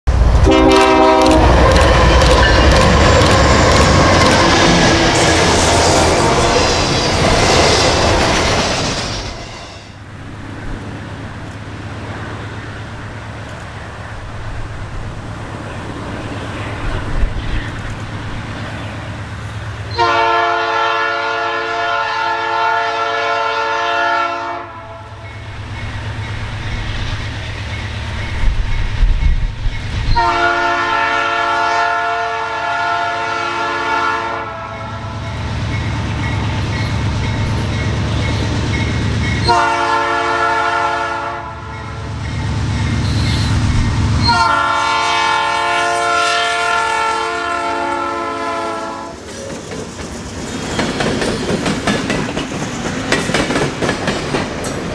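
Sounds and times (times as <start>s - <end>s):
diesel locomotive rumble: 0.0s - 54.9s
locomotive air horn: 0.3s - 8.7s, 19.9s - 25.2s, 30.1s - 35.4s, 39.4s - 42.1s, 44.2s - 49.2s.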